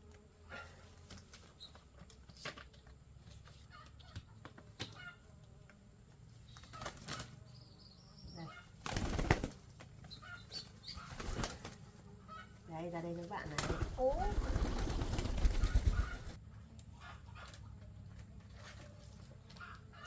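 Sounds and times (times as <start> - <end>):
birds clicking and chirping: 1.0 - 20.0
wings flapping: 6.5 - 7.4, 8.6 - 12.4, 13.0 - 16.4.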